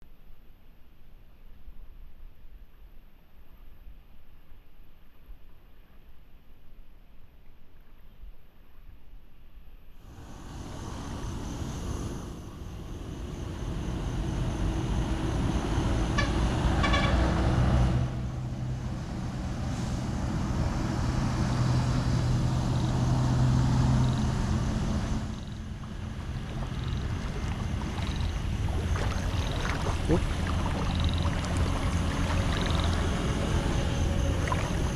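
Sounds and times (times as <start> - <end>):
vehicle engine running: 10.1 - 34.9.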